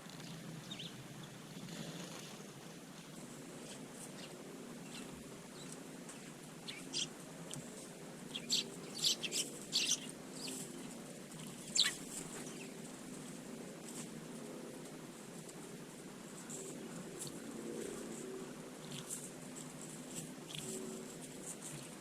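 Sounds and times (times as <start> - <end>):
sparrows chirping: 0.1 - 1.4, 3.6 - 7.2, 8.2 - 12.8.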